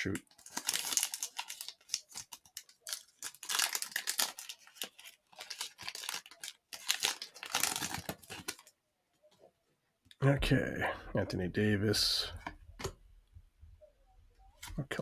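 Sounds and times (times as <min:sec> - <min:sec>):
plastic wrapper tearing and crinkling: 0:00.1 - 0:08.7.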